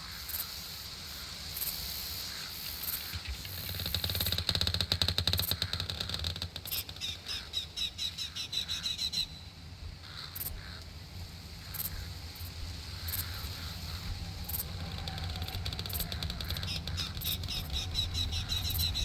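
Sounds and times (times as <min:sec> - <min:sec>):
rattling chatter of animal calls: 0:01.6 - 0:09.3, 0:11.6 - 0:19.0
faint high ticks: 0:02.4 - 0:07.6, 0:13.1 - 0:19.0.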